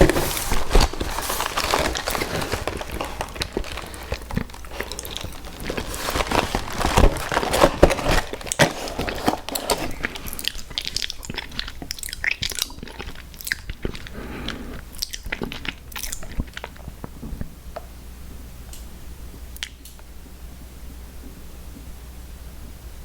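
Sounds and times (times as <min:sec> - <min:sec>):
person biting and chewing: 0:00.0 - 0:14.2.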